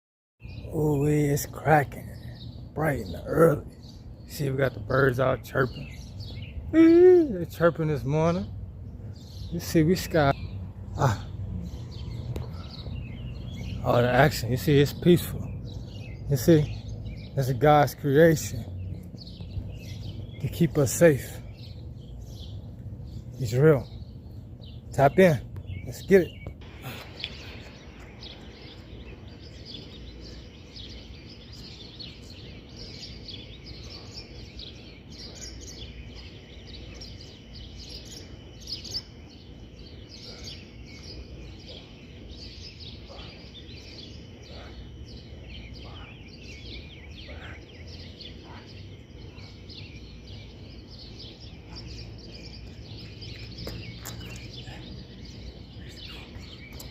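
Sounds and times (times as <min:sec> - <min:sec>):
songbirds chirping: 0:00.4 - 0:56.9.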